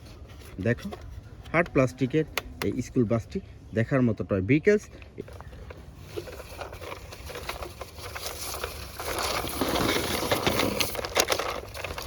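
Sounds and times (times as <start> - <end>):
handling rustling: 5.2 - 12.0.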